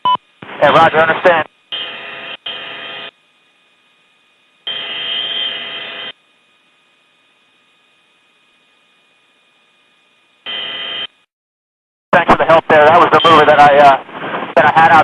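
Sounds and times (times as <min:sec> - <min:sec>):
radio static hiss: 0:00.0 - 0:06.3, 0:12.2 - 0:15.0
steady hum: 0:00.0 - 0:11.2.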